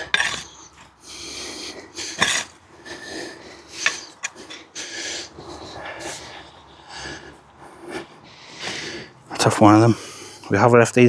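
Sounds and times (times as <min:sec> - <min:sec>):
scraping and rustling of soil: 0:00.0 - 0:04.4
heavy breathing: 0:00.0 - 0:10.7.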